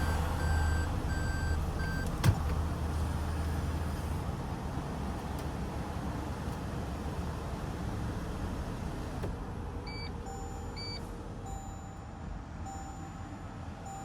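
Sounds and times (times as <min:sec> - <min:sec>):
low repeating warning beep: 0:00.0 - 0:02.1, 0:09.9 - 0:14.0.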